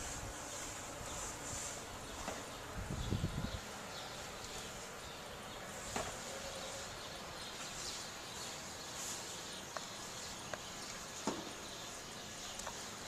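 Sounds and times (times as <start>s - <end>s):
snowstorm hiss: 0.0s - 7.0s.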